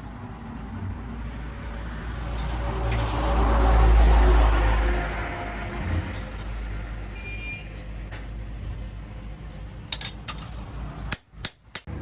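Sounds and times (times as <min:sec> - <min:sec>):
sharp metal clinks: 0:09.9 - 0:11.9.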